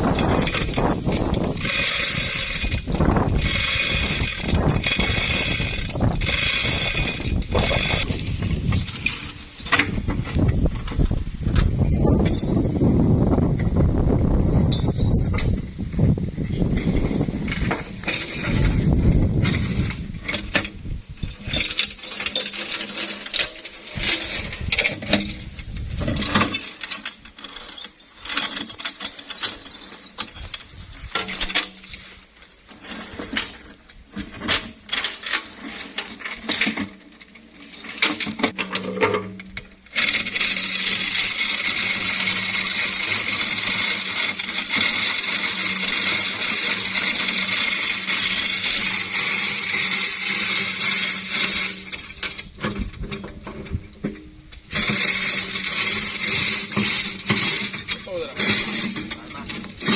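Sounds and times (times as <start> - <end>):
metal clinking and knocking: 0.0 - 59.9.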